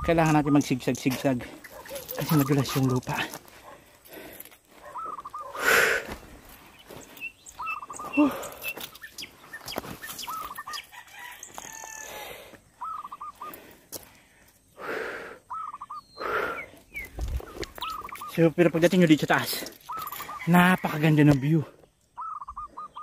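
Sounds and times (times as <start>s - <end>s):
bird calling short notes: 12.8s - 13.6s, 15.5s - 18.6s.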